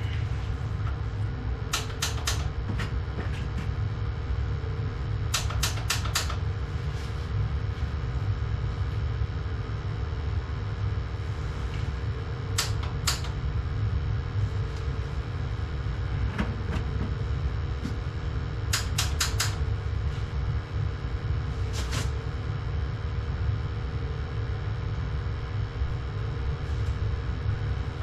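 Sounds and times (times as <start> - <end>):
steady low hum: 0.0 - 28.0
pilot igniter clicks: 1.7 - 2.5, 5.3 - 6.4, 12.6 - 13.4, 18.7 - 19.6.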